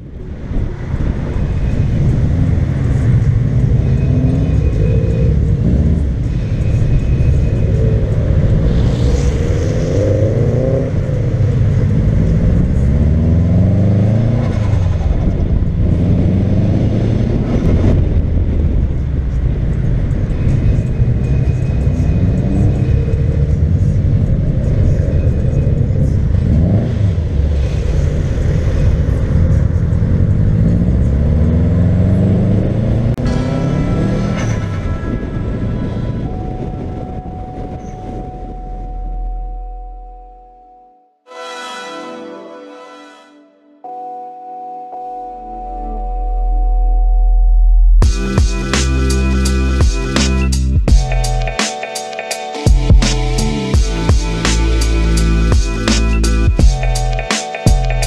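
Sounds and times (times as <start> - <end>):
car engine revving: 0.0 - 37.0
road and wind noise: 0.0 - 40.8, 45.4 - 58.0.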